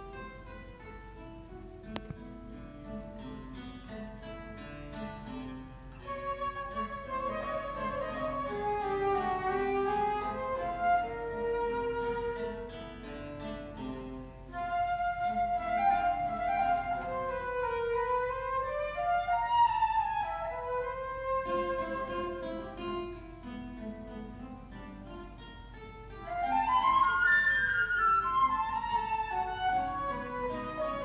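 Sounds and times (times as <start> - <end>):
plucked guitar: 0.0 - 31.0
flute melody: 6.0 - 13.1, 14.4 - 23.2, 26.2 - 31.0.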